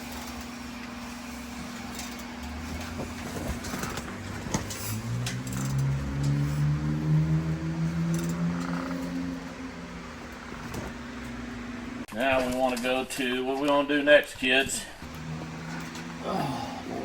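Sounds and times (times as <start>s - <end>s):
low background hum: 0.0s - 17.0s
tools clicking and tapping: 3.9s - 6.4s
motor humming: 15.0s - 17.0s.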